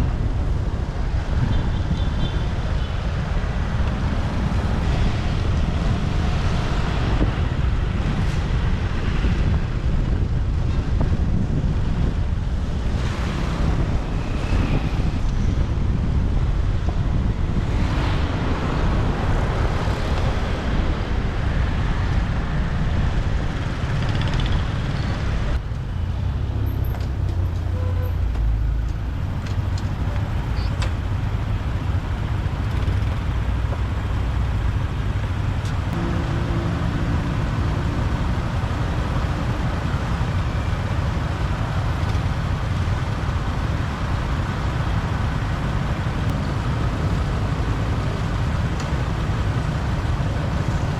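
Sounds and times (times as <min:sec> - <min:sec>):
traffic: 0:00.0 - 0:50.9
motorbike engine: 0:26.0 - 0:50.9
pitched hum of passing vehicle: 0:32.8 - 0:41.9.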